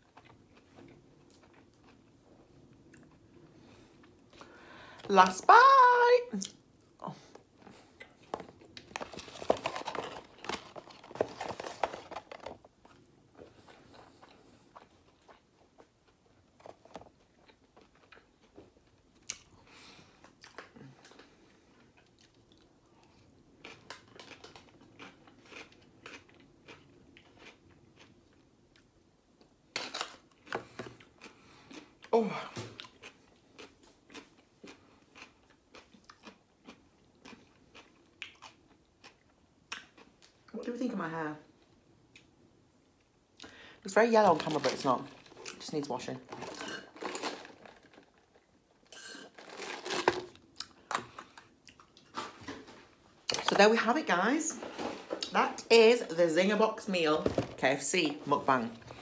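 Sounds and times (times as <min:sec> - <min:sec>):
chewing food: 0:00.0 - 0:04.4, 0:07.2 - 0:29.6, 0:30.2 - 0:40.5, 0:50.3 - 0:53.4.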